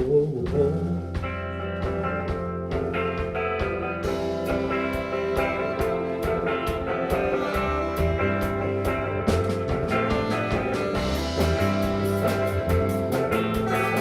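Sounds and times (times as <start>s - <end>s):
guitar-led rock band: 0.0s - 14.0s
steady drum beat: 0.0s - 14.0s.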